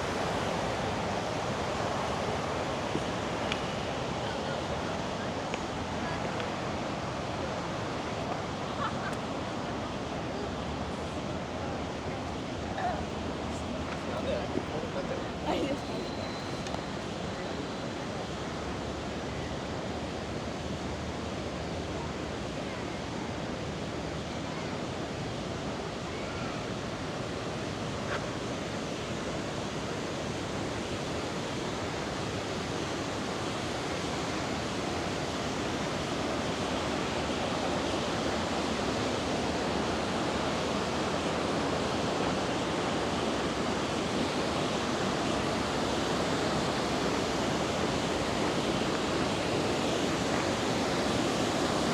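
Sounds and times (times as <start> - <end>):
river water rushing over rocks: 27.0 - 51.9.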